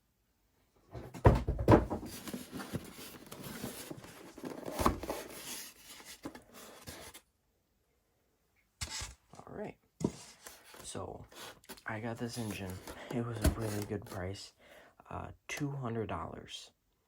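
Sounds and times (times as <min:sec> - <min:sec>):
packaging rustling and scraping: 0:01.0 - 0:07.2, 0:10.0 - 0:14.2.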